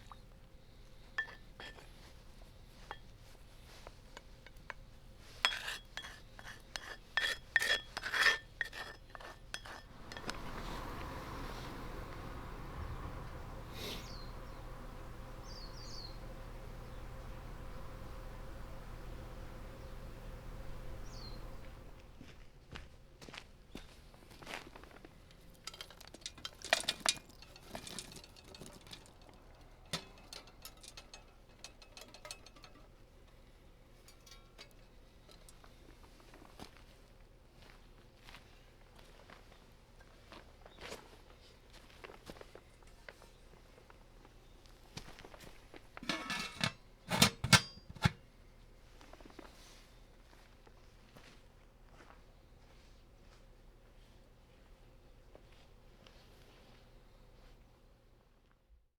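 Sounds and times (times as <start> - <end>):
outdoor hum: 0.0 - 36.7, 45.0 - 49.5
utensil clinking on bowl: 1.2 - 2.1, 2.8 - 11.2, 25.6 - 33.4, 34.0 - 35.6, 46.0 - 48.2.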